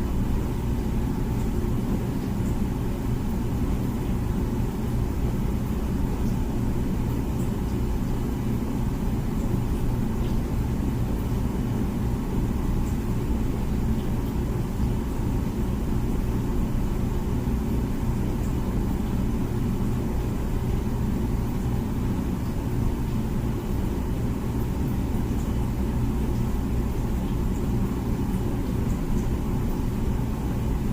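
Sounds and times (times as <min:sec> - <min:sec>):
dishwasher running: 0:00.0 - 0:30.9.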